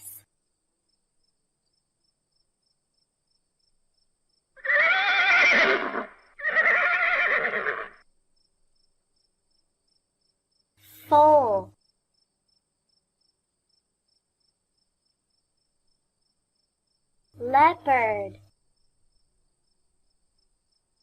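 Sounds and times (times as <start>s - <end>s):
horse whinnying: 4.6s - 8.0s.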